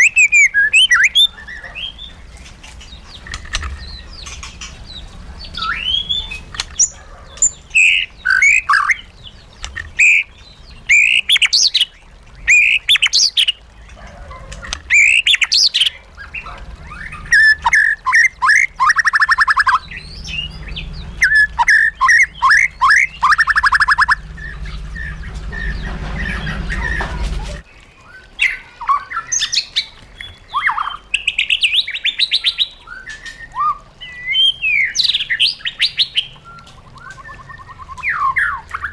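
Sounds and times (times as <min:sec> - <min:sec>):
songbird whistles and trills: 0:00.0 - 0:04.7, 0:05.4 - 0:14.0, 0:14.6 - 0:38.9
low hum: 0:19.7 - 0:27.6.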